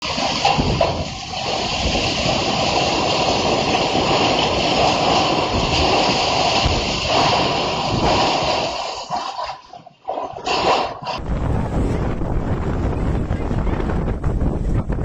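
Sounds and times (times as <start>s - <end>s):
windstorm rushing: 0.0s - 9.5s, 10.4s - 15.0s
low rumble: 11.2s - 15.0s.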